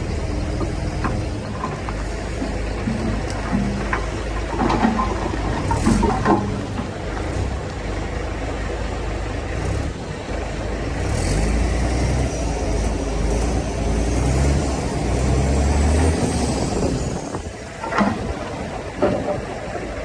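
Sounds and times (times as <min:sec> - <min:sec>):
heavy diesel engine under load: 0:00.0 - 0:20.0.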